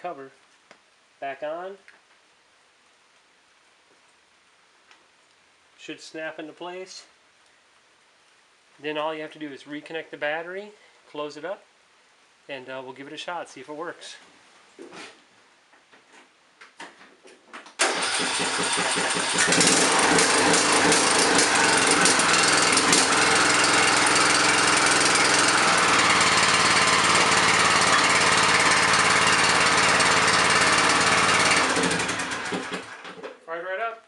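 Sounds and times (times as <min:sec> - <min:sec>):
lawn tractor engine starting: 0:17.8 - 0:33.4.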